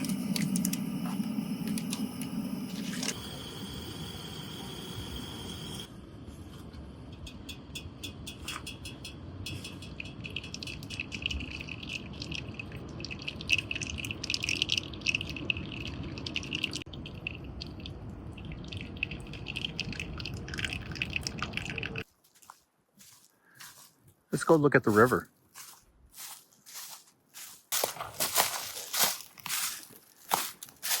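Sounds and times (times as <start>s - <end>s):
liquid bubbling and dripping: 9.8s - 22.1s.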